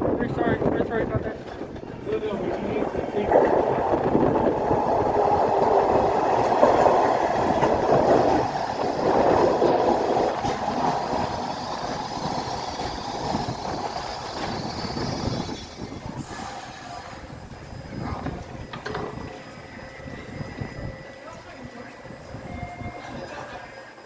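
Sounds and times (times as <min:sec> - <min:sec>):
subway train rumbling on rails: 0:00.0 - 0:24.0
faint high whine: 0:09.1 - 0:24.0.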